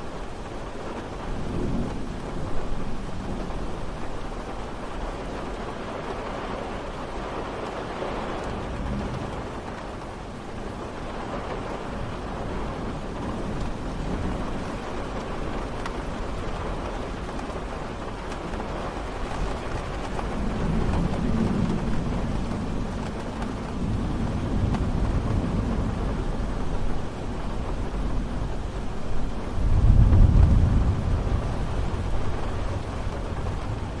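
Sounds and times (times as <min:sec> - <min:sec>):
rain falling: 0:00.0 - 0:34.0.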